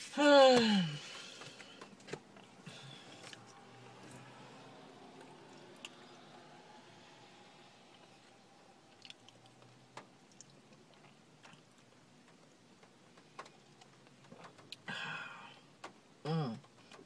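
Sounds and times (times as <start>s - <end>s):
quiet chewing: 1.2s - 6.4s, 7.9s - 12.5s.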